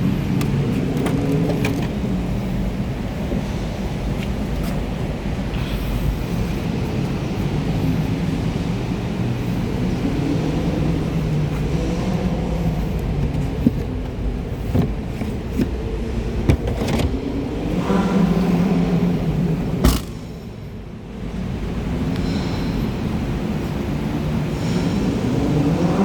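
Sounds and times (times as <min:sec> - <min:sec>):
car engine rumbling: 0:00.0 - 0:26.0.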